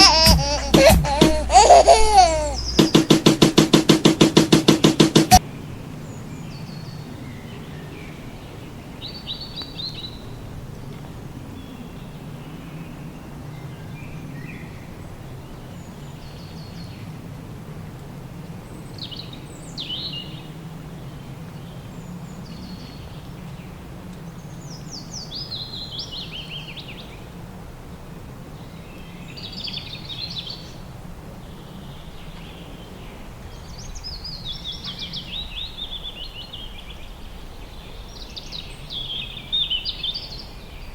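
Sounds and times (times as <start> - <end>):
birds chirping and trilling: 1.6 - 3.0.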